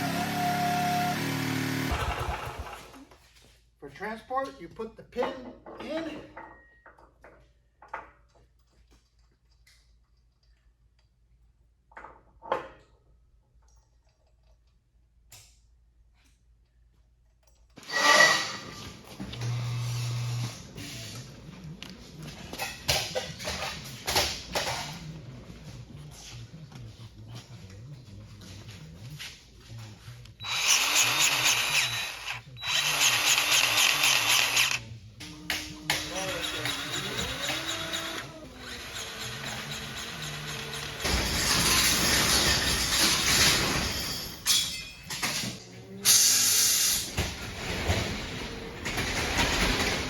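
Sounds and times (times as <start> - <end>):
power tool bursts: 0.0 - 3.0, 30.4 - 34.8, 35.9 - 43.4
noisy clatter with ringing tone: 30.4 - 45.6.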